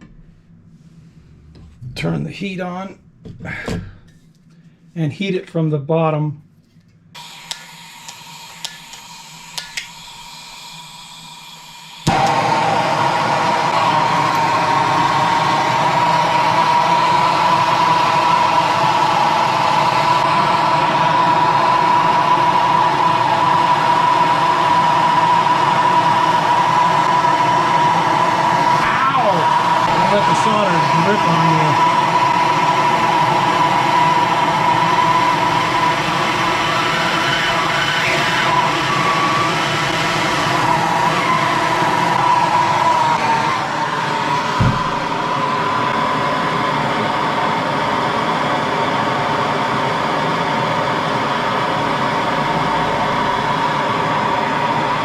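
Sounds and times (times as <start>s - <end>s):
faint steady whistle: 7.2s - 46.6s
soldering torch hissing: 7.2s - 48.2s
low thump: 44.6s - 45.0s.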